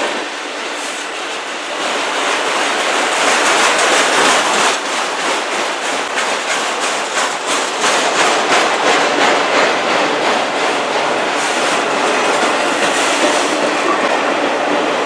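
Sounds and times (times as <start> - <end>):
train wheels clacking over rail joints: 0.0 - 15.0.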